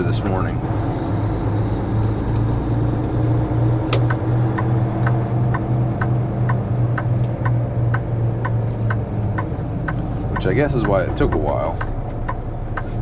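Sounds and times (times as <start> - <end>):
diesel engine droning: 0.0 - 13.0
turn signal ticking: 1.2 - 13.0.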